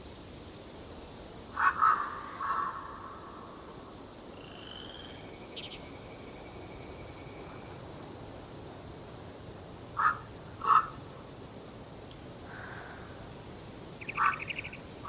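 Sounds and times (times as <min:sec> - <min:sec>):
outdoor hush: 0:00.0 - 0:15.0
harsh bird calls: 0:01.6 - 0:03.5, 0:14.0 - 0:14.9.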